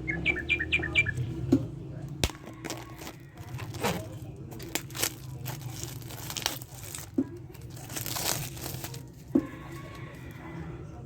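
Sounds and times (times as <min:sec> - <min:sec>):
plastic packaging being handled: 0:02.2 - 0:10.5.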